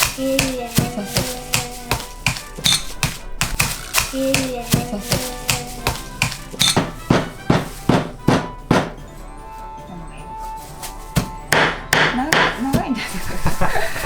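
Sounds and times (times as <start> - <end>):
stick knocking crushing chocolate: 0.0 - 9.1, 11.0 - 13.0
background music: 0.0 - 14.0.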